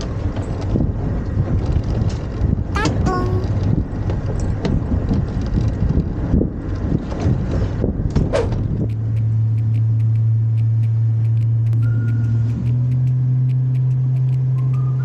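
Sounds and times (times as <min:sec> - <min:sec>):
wind rumble on microphone: 0:00.0 - 0:02.8, 0:03.4 - 0:15.0
faint regular ticks: 0:08.8 - 0:15.0.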